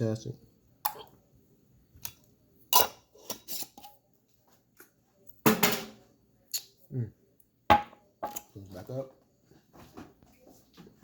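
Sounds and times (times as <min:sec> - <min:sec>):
dishes and utensils clattering: 0:05.4 - 0:06.0.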